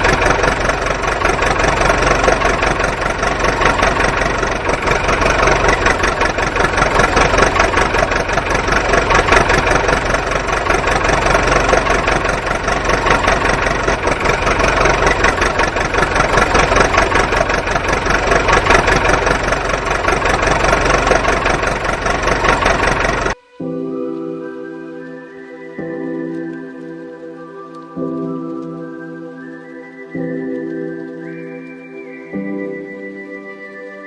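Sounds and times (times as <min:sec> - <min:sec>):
vehicle engine idling with rattle: 0:00.0 - 0:23.4.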